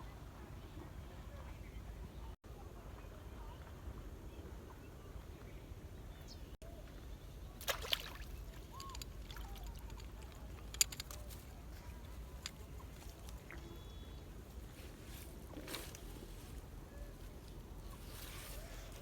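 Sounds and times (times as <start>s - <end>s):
water splashing: 7.6s - 10.5s
faint bird chirps: 8.4s - 10.0s, 13.5s - 14.4s.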